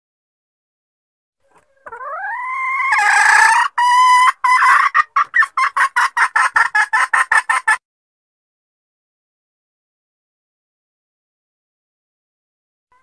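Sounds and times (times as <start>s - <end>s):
hen squawking and clucking: 1.4s - 7.8s.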